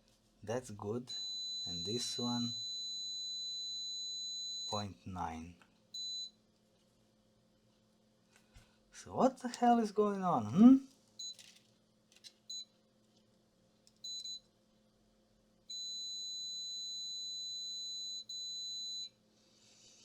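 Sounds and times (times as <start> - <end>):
multimeter continuity beeping: 1.1 - 5.0, 15.7 - 19.1.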